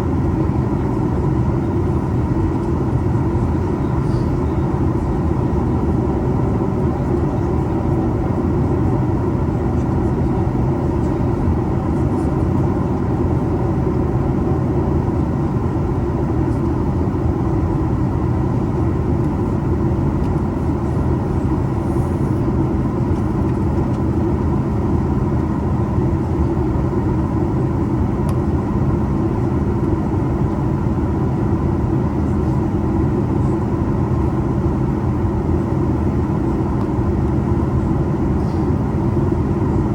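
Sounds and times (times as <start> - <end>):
aircraft cabin engine drone: 0.0 - 39.9
faint whine tones: 3.5 - 5.9.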